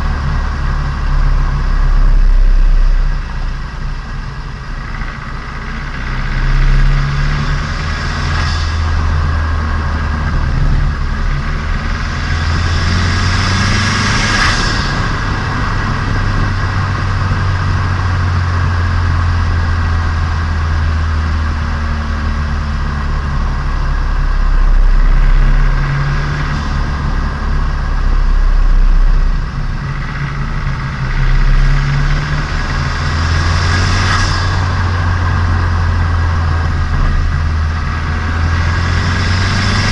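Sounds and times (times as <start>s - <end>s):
car engine and exhaust: 0.0s - 39.9s.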